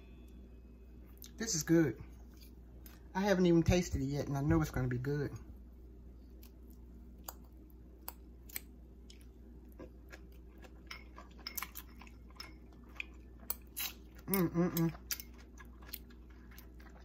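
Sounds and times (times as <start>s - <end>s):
person chewing crunchy slaw: 6.3s - 17.0s
person humming mm: 14.3s - 15.0s.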